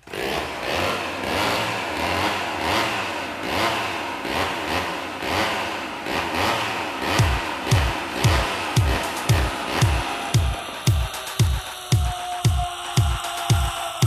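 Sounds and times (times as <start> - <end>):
chainsaw engine revving: 0.0 - 12.0
industrial music: 6.5 - 14.0.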